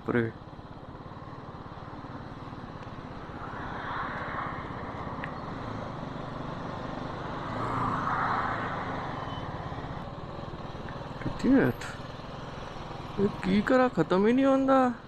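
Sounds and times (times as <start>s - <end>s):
motorcycle engine running: 0.0s - 3.3s, 9.5s - 15.0s.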